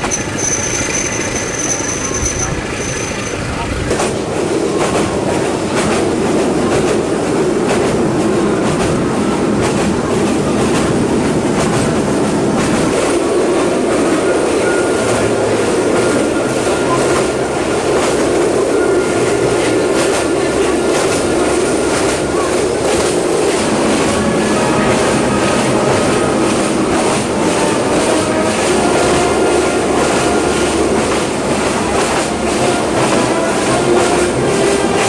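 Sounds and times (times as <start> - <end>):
wheels clicking over rail joints: 0.0 - 24.2
train rumbling along track: 0.0 - 35.0.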